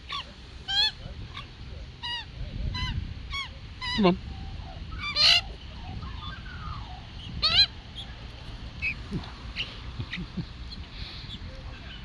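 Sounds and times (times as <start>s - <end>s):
magpie harsh call: 0.0s - 4.2s, 4.8s - 8.1s
fluting bird call: 0.0s - 8.2s.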